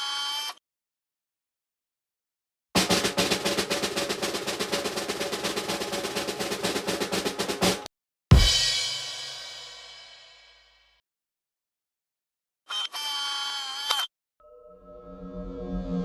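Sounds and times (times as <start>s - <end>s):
snare drum roll: 2.8s - 10.2s
cymbal crash: 2.8s - 10.6s.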